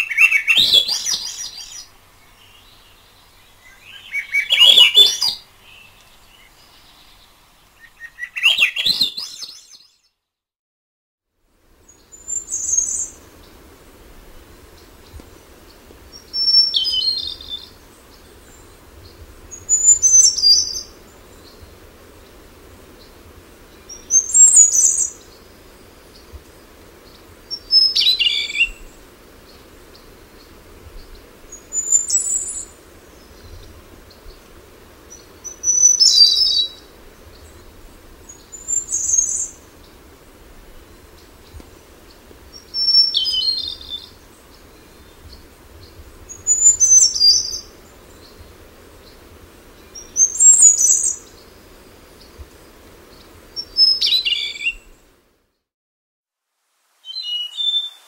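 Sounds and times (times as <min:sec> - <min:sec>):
thrush singing whistled phrases: 0:03.7 - 0:05.4.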